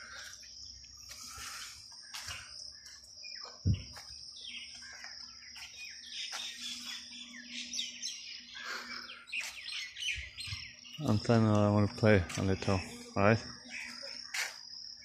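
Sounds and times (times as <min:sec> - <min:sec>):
birds chirping and calling: 0:00.0 - 0:15.0
steady high buzz: 0:05.3 - 0:15.0.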